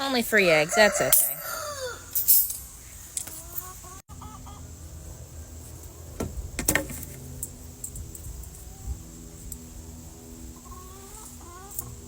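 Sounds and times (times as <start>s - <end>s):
hens clucking: 0.0s - 2.2s, 2.8s - 7.4s, 10.4s - 12.0s.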